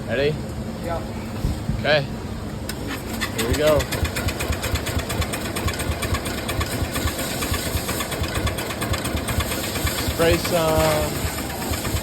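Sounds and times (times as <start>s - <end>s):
lawn tractor engine cranking: 2.6s - 12.0s.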